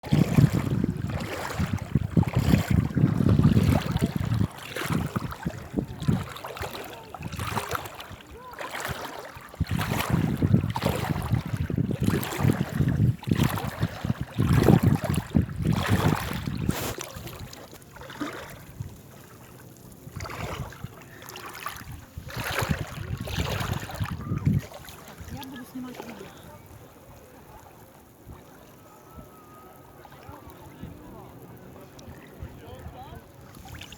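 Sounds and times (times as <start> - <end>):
wind buffeting microphone: 0.0 - 17.6, 19.8 - 27.0.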